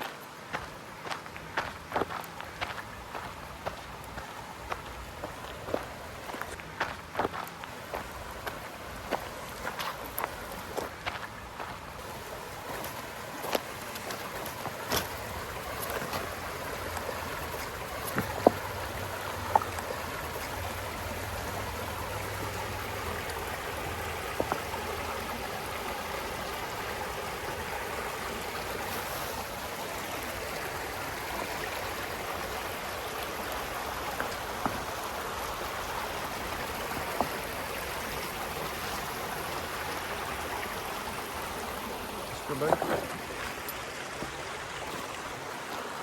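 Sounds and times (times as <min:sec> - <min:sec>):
creek water rushing: 0:00.0 - 0:46.0.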